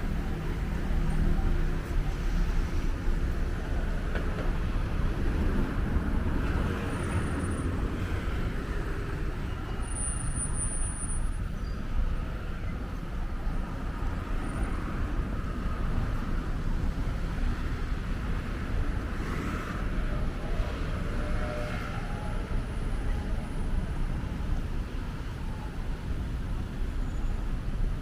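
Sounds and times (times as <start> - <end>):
road traffic noise: 0.0 - 28.0.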